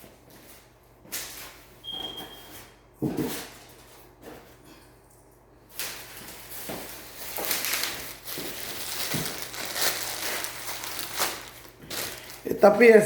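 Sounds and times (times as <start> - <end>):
rustling of handled parts: 5.9 - 12.7.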